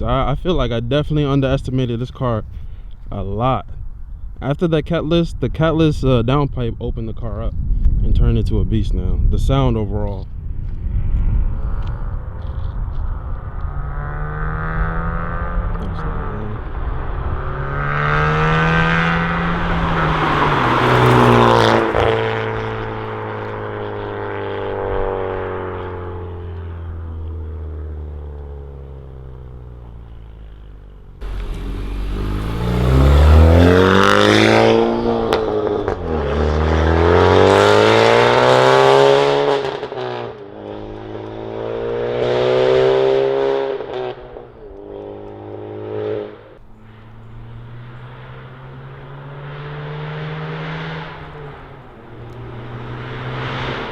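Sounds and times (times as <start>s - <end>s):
car engine accelerating hard: 11.6s - 53.9s.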